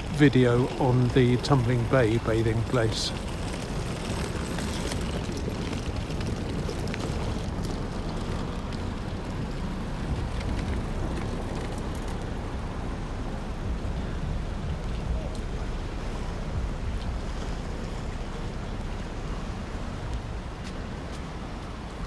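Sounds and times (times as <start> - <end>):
road traffic: 0.0 - 22.0
wind buffeting microphone: 0.0 - 22.0.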